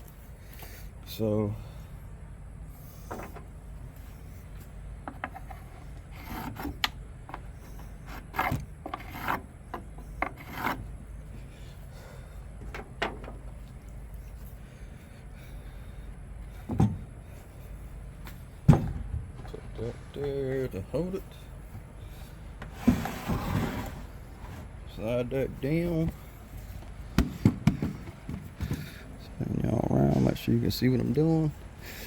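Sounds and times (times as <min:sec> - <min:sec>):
wood scraping on wood: 0:05.1 - 0:11.5, 0:22.6 - 0:24.9.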